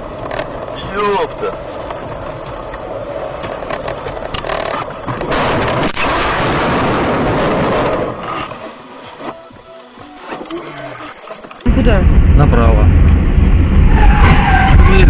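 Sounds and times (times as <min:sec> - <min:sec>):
vehicle and road noise: 0:00.0 - 0:15.0.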